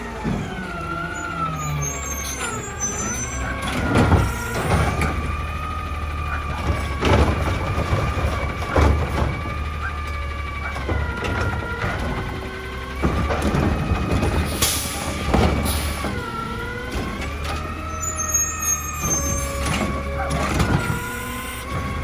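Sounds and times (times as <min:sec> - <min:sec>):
garbage truck engine whining: 0:00.0 - 0:22.0.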